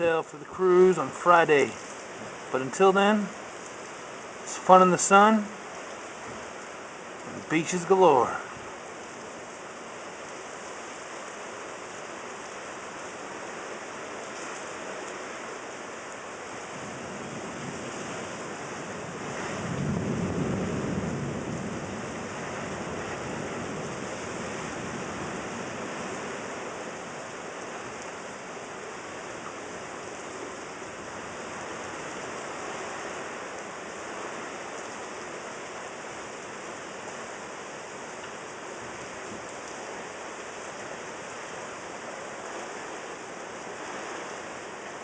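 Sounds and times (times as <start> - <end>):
steady rain falling: 0.0 - 45.0
thunder rumble: 16.7 - 27.1.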